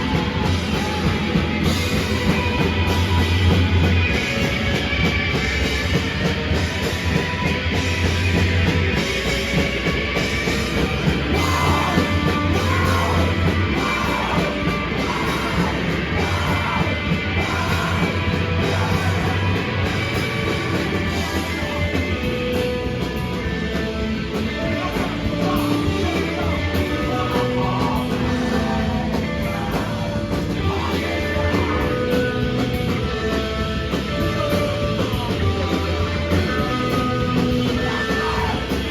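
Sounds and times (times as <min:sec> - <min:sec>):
live rock band playing: 0:00.0 - 0:38.9
shouted vocals: 0:11.0 - 0:22.0, 0:34.1 - 0:38.9.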